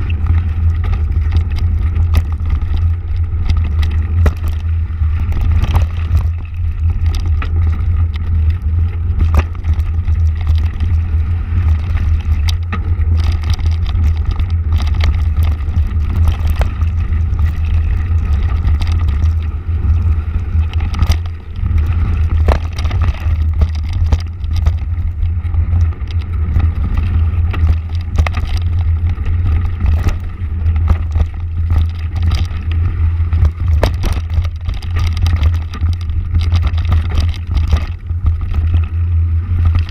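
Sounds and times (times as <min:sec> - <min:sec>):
motorcycle engine rumble: 0:00.0 - 0:39.9
knocks and rattles: 0:20.6 - 0:25.2, 0:33.3 - 0:38.9.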